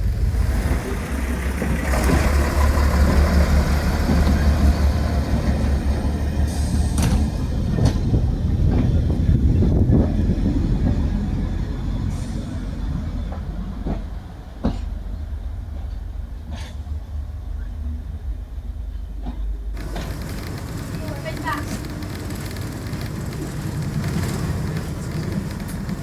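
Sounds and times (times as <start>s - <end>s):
diesel train engine droning: 0.0s - 26.0s
wheels knocking over rail joints: 19.8s - 26.0s.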